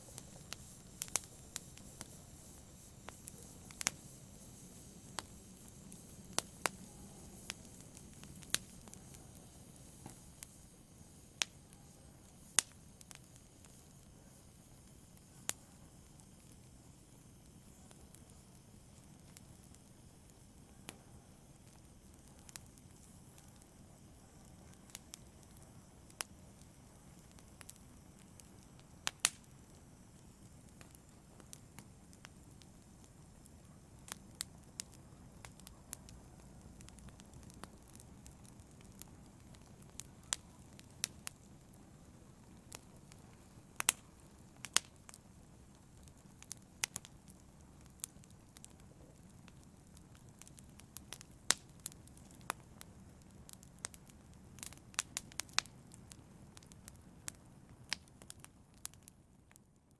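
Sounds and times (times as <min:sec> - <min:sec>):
rush of flames: 0:00.0 - 0:12.7
fire crackles and pops: 0:00.0 - 0:59.9.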